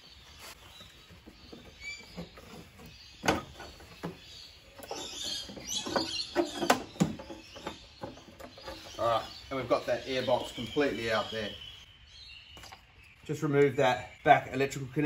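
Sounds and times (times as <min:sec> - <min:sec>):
plastic parts knocking and scraping: 0:01.2 - 0:09.1.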